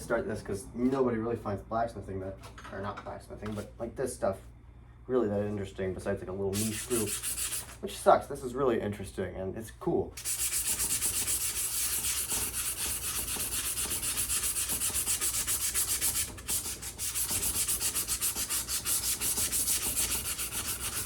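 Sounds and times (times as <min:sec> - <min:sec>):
sandpaper scouring metal: 0:06.6 - 0:07.8, 0:10.2 - 0:21.0.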